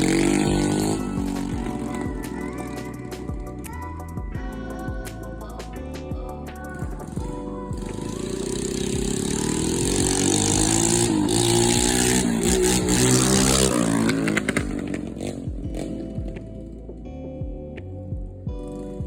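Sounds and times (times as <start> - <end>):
pit bike engine revving: 0.0 - 2.7, 7.8 - 16.8.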